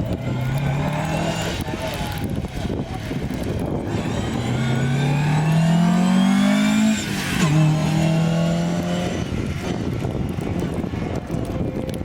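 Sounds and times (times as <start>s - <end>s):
car engine accelerating hard: 0.0s - 2.2s, 3.3s - 9.9s.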